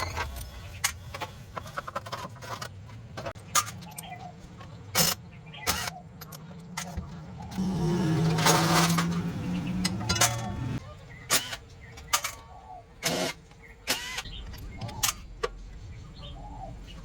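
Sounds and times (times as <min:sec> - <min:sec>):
metal tools clanking: 0:05.8 - 0:10.8
small motor humming: 0:07.6 - 0:10.8.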